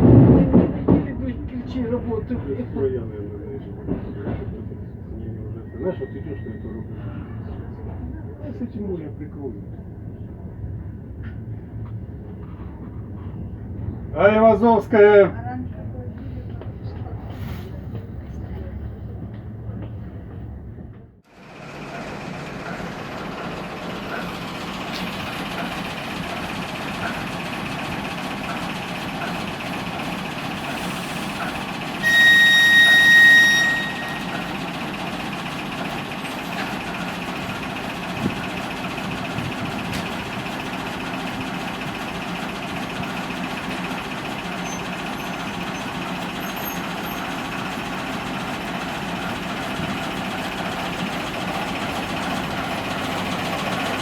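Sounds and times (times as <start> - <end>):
train running: 0.0 - 54.0
high train whistle: 32.0 - 34.6.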